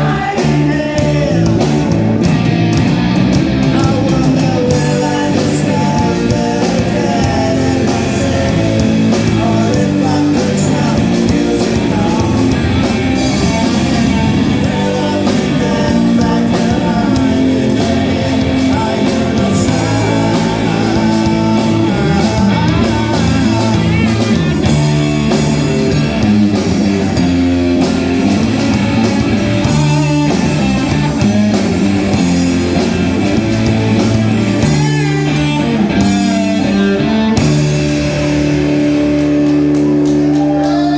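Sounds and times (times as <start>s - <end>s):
person singing: 0.0s - 2.0s, 3.5s - 25.8s, 40.3s - 40.9s
bass guitar: 0.0s - 40.9s
drums: 0.0s - 40.9s
electric guitar: 0.0s - 40.9s.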